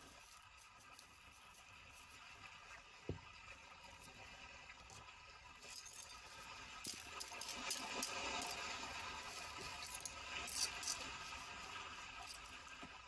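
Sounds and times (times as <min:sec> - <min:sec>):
small hard objects clinking: 0:05.6 - 0:12.7.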